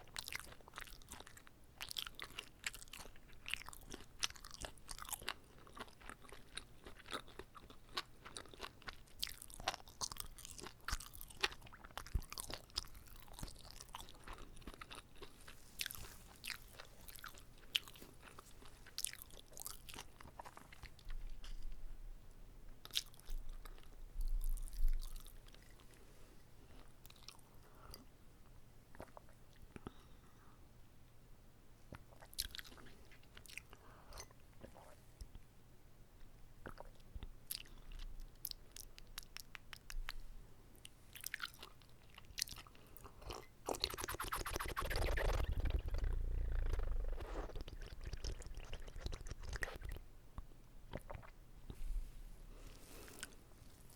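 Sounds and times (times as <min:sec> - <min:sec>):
chewing and biting food: 0:00.0 - 0:21.8, 0:22.8 - 0:26.0, 0:26.7 - 0:28.1, 0:31.9 - 0:35.0, 0:36.6 - 0:40.2, 0:40.8 - 0:50.0, 0:50.9 - 0:51.4
low muffled rumbles: 0:45.1 - 0:47.8.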